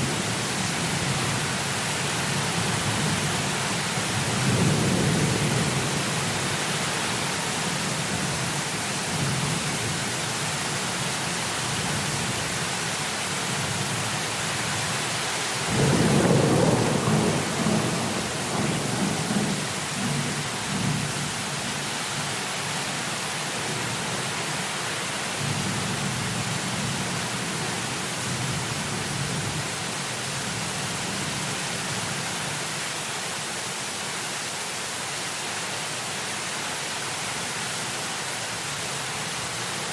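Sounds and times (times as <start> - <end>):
heavy rain hissing: 0.0 - 39.9
rolling thunder: 15.7 - 20.9.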